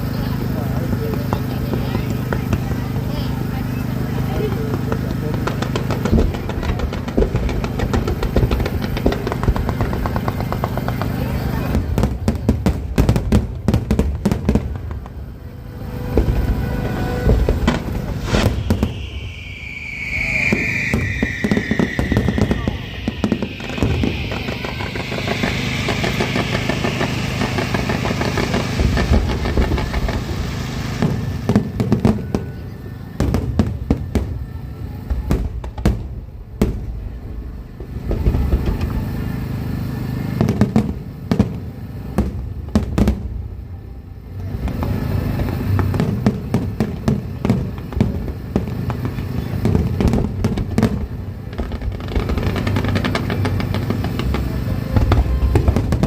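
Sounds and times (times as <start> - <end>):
firework shells bursting: 16.2 - 31.6.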